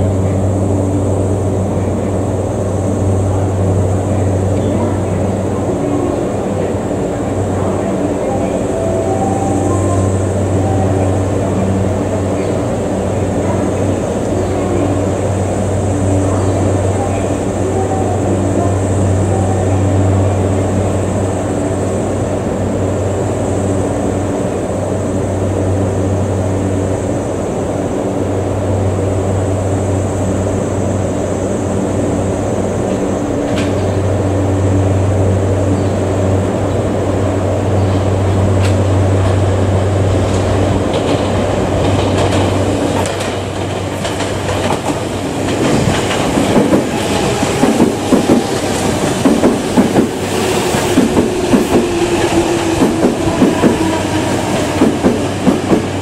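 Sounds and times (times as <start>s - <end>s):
train wheels clacking: 40.2s - 56.0s.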